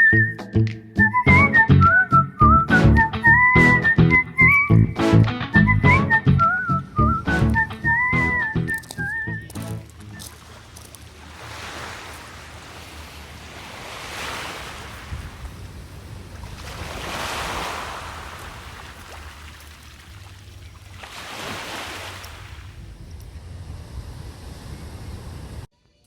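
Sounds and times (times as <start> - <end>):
sea waves breaking on beach: 9.6 - 22.8.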